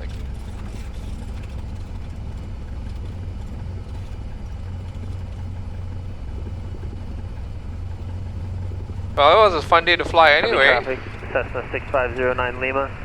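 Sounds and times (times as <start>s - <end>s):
small plane engine running: 0.0s - 13.0s.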